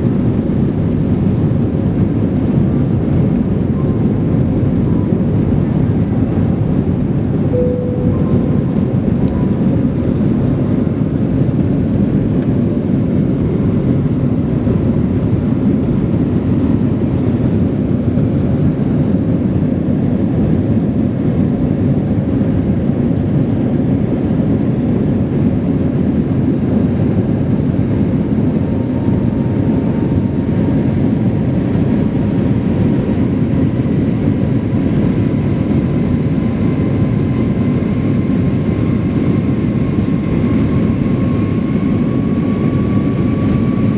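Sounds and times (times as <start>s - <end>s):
jet engine and airflow rushing: 0.0s - 43.9s
faint rising whine: 7.5s - 11.0s.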